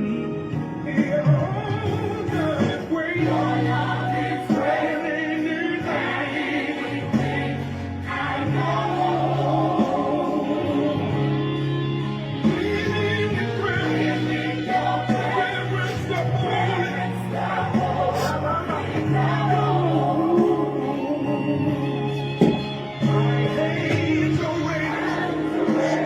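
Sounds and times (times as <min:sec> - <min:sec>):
gospel choir singing: 0:00.0 - 0:26.0
instrumental accompaniment: 0:00.0 - 0:26.0.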